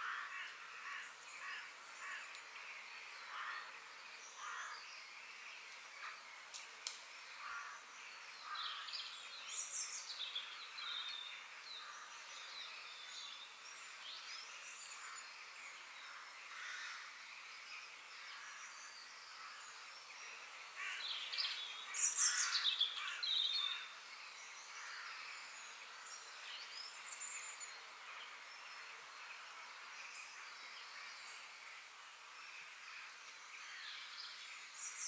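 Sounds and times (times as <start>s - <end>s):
birds chirping and calling: 18.3s - 28.7s.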